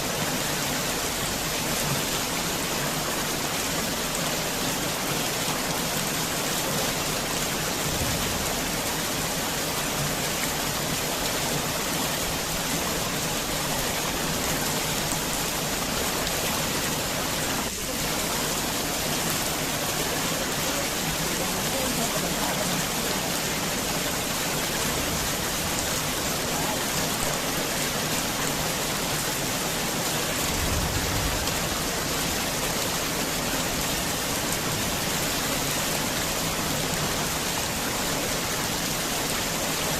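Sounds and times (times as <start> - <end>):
heavy rain falling: 0.0 - 39.9
short low rumble: 30.5 - 31.7.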